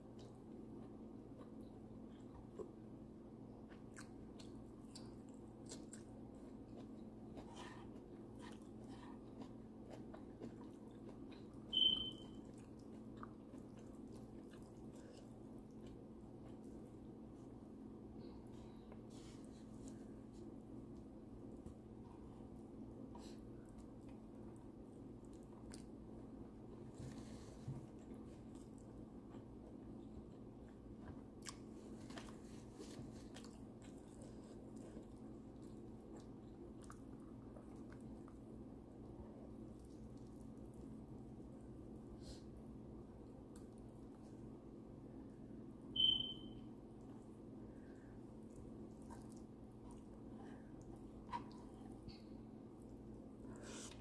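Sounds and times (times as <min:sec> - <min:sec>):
chewing and wet mouth clicks: 0:03.7 - 0:16.8, 0:25.2 - 0:26.0, 0:28.5 - 0:32.3, 0:33.3 - 0:38.5, 0:39.6 - 0:41.1, 0:43.5 - 0:43.9, 0:48.4 - 0:50.2
short high-pitched beep: 0:11.7 - 0:12.3, 0:46.0 - 0:46.6.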